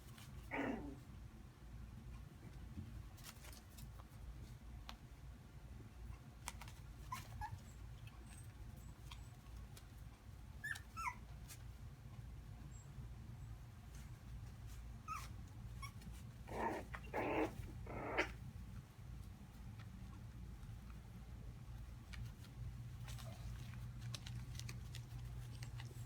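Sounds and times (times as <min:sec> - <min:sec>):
puppy whimpering: 0:10.6 - 0:11.3, 0:15.1 - 0:18.4.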